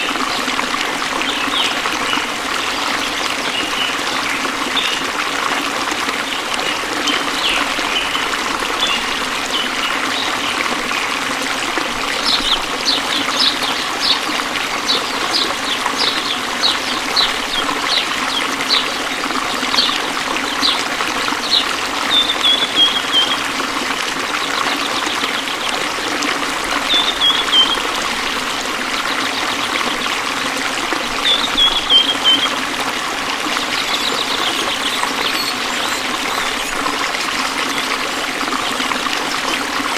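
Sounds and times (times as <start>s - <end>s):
waterfall rushing: 0.0s - 39.9s
bird high calls and trills: 21.4s - 23.5s, 26.8s - 28.0s, 31.2s - 32.6s, 33.6s - 36.9s.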